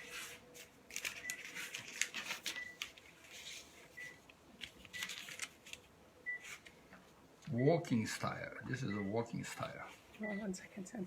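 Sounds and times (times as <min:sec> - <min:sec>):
paper rustling and scratching: 0:00.0 - 0:03.9, 0:04.6 - 0:06.8.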